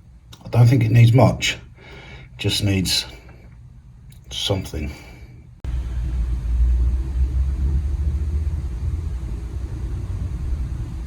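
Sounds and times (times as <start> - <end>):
deep low rumble: 5.6 - 11.0.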